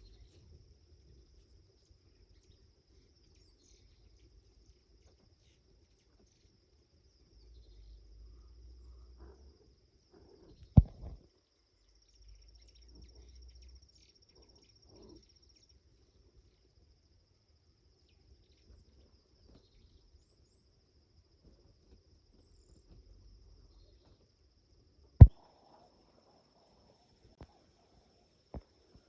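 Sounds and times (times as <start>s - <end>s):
sharp knock: 10.8s - 11.2s.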